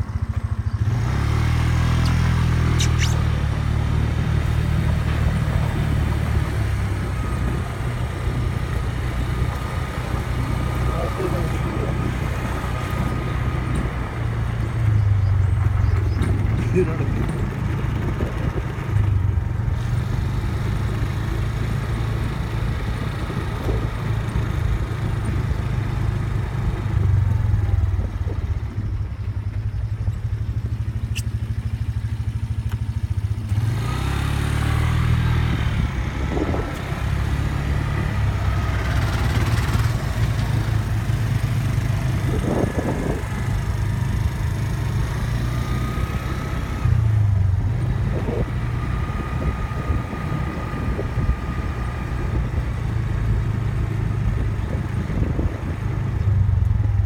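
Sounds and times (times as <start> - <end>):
wind buffeting microphone: 2.5 - 32.3, 34.6 - 57.0
faint wind whistling: 34.9 - 57.0.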